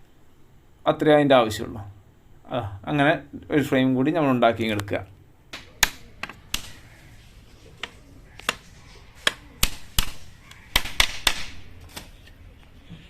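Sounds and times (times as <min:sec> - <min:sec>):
hammer striking nails into wood: 0:05.5 - 0:06.8, 0:07.8 - 0:11.7.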